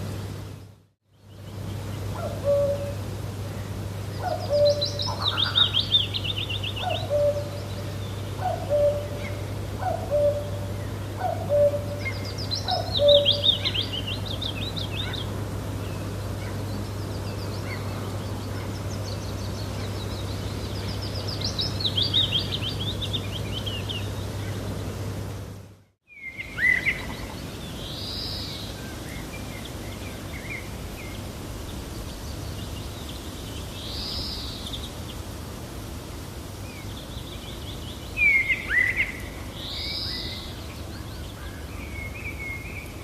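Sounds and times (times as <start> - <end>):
steady low hum: 0.0 - 26.0
fast trilling birdsong: 4.2 - 24.6.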